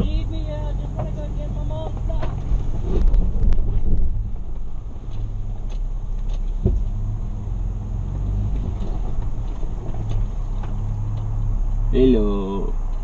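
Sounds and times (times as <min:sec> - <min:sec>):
truck engine running at low revs: 0:00.0 - 0:13.0.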